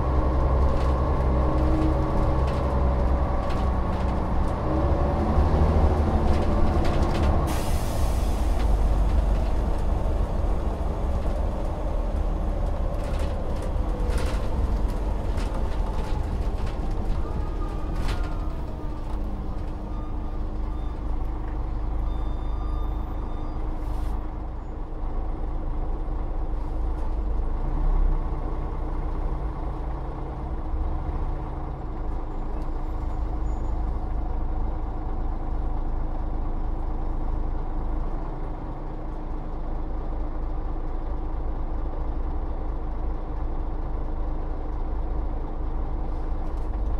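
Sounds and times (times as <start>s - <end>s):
bus engine slowing and idling: 0.0s - 46.9s
air brakes hissing: 7.4s - 8.8s, 23.8s - 24.2s.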